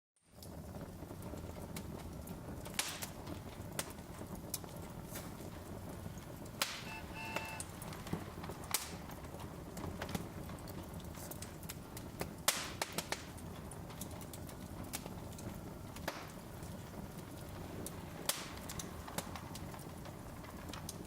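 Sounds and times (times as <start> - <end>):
log fire crackling: 0.2 - 21.0
short faint tone: 6.9 - 7.6.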